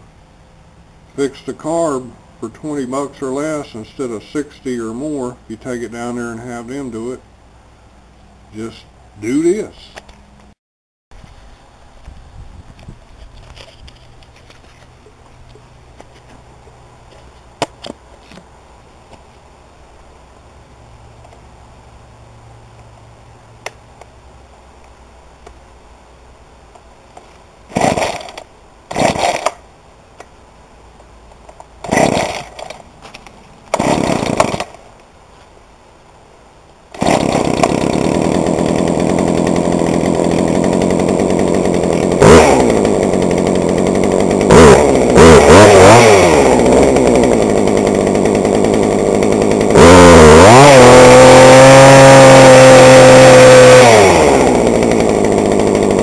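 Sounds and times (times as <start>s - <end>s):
chainsaw engine revving: 27.7s - 29.6s, 31.8s - 32.8s, 33.7s - 34.8s, 36.9s - 56.0s
chainsaw pull-start sputtering: 27.7s - 29.6s, 31.8s - 32.8s, 33.7s - 34.8s, 36.9s - 56.0s.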